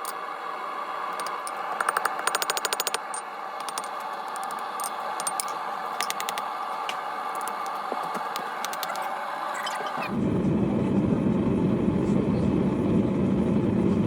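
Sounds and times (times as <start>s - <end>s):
steady background hum: 0.0s - 14.0s
hammer tapping on hot steel: 1.2s - 4.6s.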